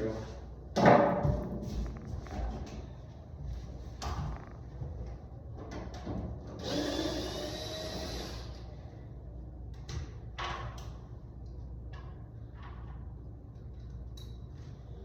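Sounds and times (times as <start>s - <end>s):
power drill motor whine: 6.6s - 8.6s.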